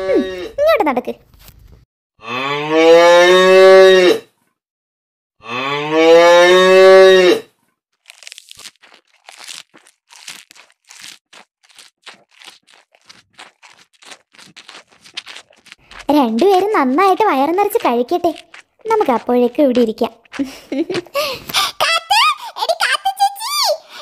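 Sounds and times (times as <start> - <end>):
crunching and tearing sounds: 7.9 - 21.5.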